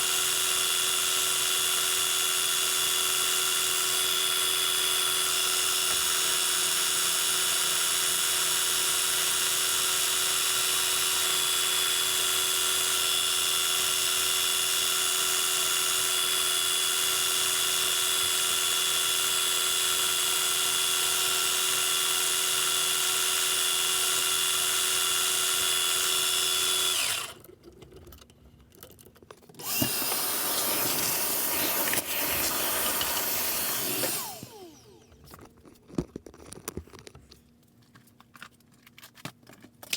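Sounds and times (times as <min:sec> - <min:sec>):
metal lathe whining: 0:26.4 - 0:27.4, 0:29.6 - 0:35.1.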